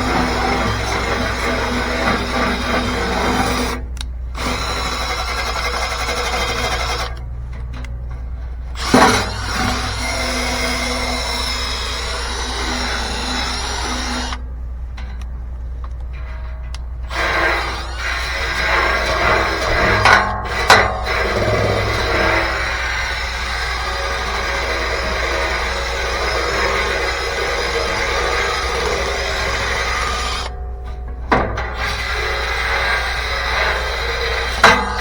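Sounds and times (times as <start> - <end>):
cordless drill spinning brush: 0.0 - 3.8, 8.8 - 14.4, 17.1 - 30.5.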